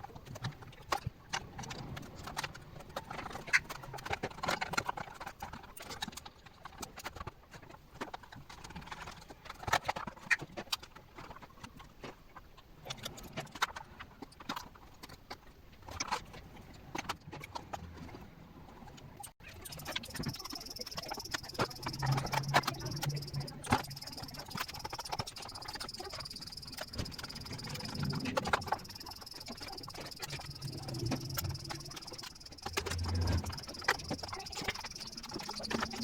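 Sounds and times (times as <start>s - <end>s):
computer parts clicking and knocking: 19.4s - 36.0s.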